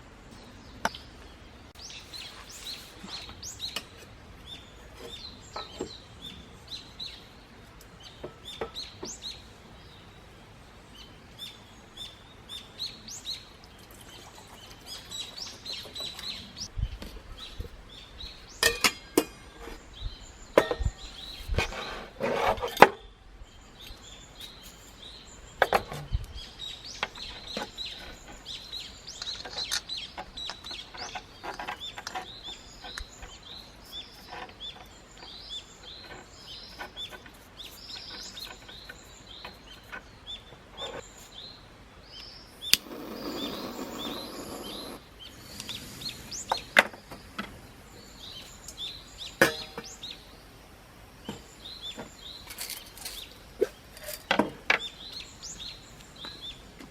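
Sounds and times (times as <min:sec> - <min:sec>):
birds chirping and singing: 0:00.2 - 0:10.3, 0:23.5 - 0:50.6, 0:51.2 - 0:56.8
sharp knocks and clinks: 0:18.6 - 0:19.8
hiss: 0:42.8 - 0:46.8.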